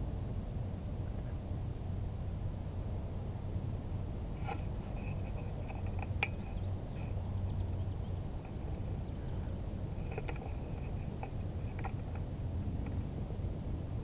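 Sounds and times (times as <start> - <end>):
faint high chirping: 4.9 - 11.8.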